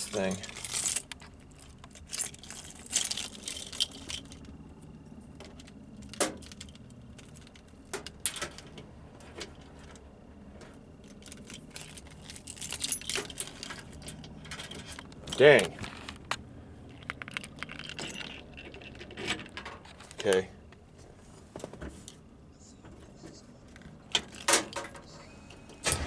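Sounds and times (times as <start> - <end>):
small metal objects jingling: 0.0 - 8.8, 11.0 - 16.1, 16.9 - 20.2.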